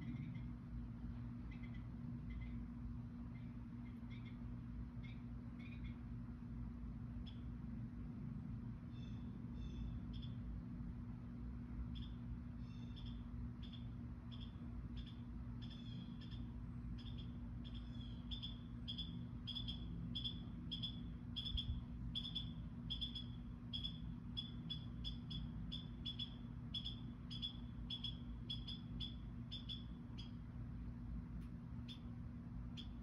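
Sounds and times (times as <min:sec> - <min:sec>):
bird chirping: 0:01.5 - 0:02.6, 0:03.3 - 0:04.4, 0:08.9 - 0:10.4, 0:12.0 - 0:30.4, 0:31.8 - 0:32.1, 0:32.8 - 0:33.0.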